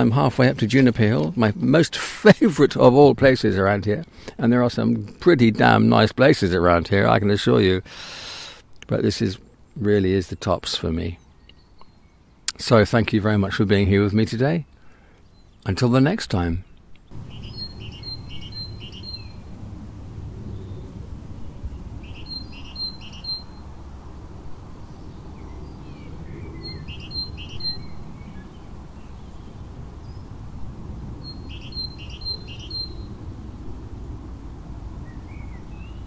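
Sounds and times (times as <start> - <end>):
songbird singing: 8.7 - 36.0.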